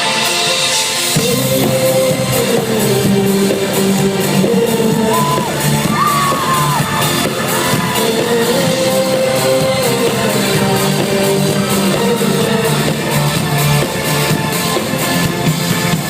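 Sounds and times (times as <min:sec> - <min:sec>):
electronic backing track: 0:00.0 - 0:16.0
woman singing pop song: 0:01.2 - 0:12.9
audience shouting: 0:04.9 - 0:08.3.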